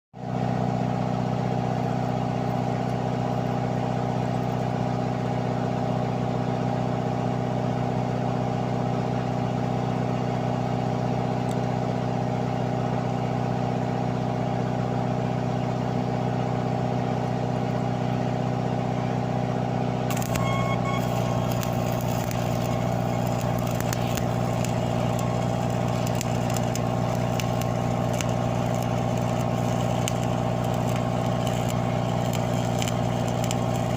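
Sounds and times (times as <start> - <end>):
engine droning steadily: 0.2 - 33.9
crackling hiss: 20.1 - 33.9.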